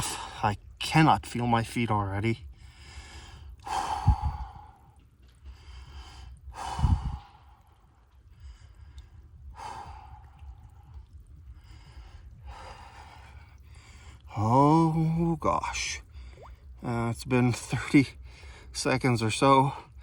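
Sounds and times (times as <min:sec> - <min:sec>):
man breathing hard: 0:02.5 - 0:14.3.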